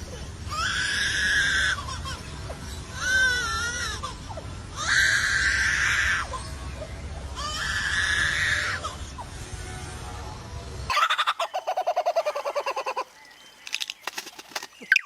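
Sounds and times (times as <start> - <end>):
faint whistled bird notes: 13.2 - 15.0.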